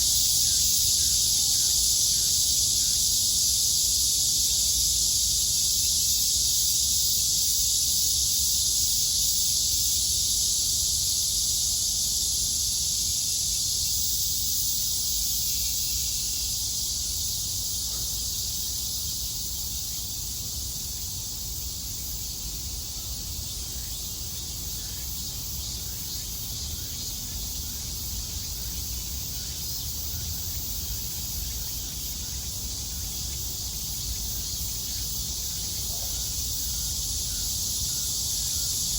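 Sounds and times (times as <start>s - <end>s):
cicadas buzzing: 0.0s - 38.9s.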